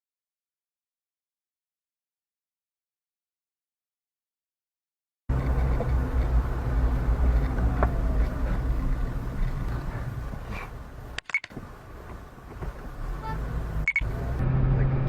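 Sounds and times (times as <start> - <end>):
car engine rumble: 5.3 - 15.0
road noise: 5.3 - 15.0.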